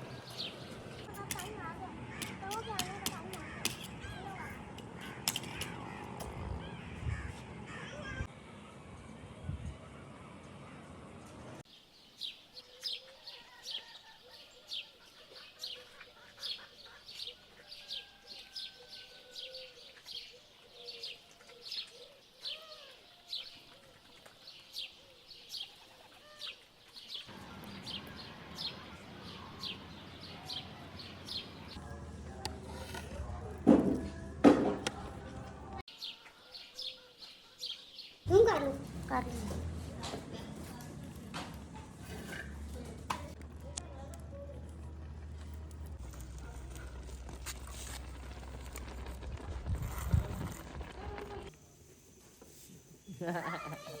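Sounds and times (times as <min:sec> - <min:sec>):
lower looping bird calls: 0:27.3 - 0:31.8.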